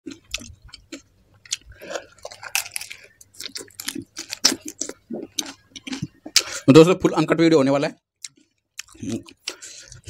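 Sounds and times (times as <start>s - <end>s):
crisp shells crunching: 1.5s - 6.0s.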